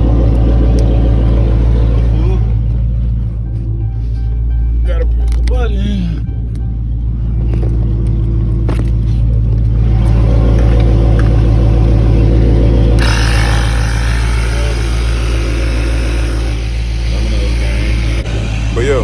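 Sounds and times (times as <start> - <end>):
air compressor humming: 12.7 - 18.7.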